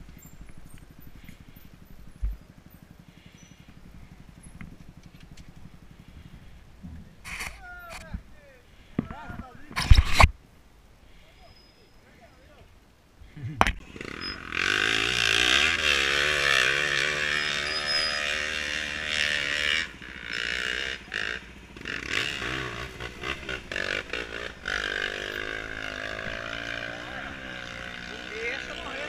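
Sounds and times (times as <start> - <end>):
motorcycle engine revving: 0.0 - 6.6, 13.5 - 29.0.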